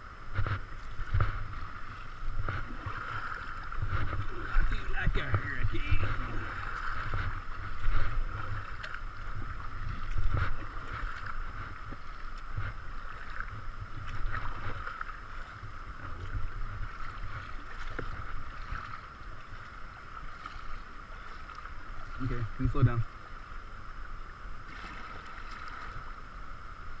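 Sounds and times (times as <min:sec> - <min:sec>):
wind buffeting microphone: 0:00.0 - 0:19.4
river water rushing and splashing: 0:00.0 - 0:27.0.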